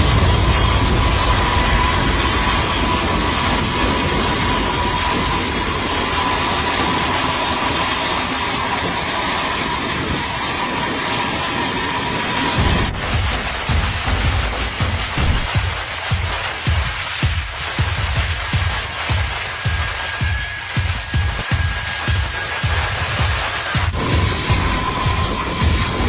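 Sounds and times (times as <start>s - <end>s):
jet engines running: 0.0s - 26.0s.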